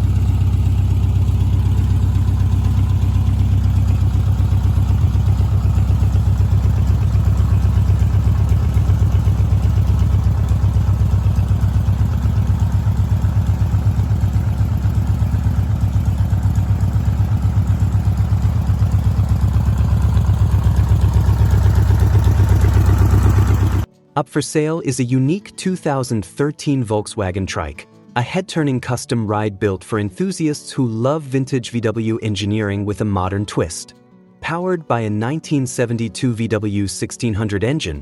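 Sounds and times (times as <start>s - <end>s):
air-cooled engine idling: 0.0s - 23.9s.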